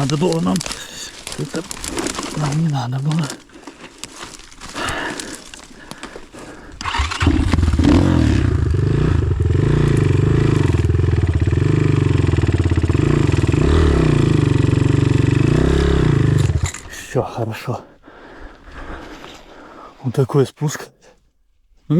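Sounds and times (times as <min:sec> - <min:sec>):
motorcycle engine starting and running: 0:06.8 - 0:16.9.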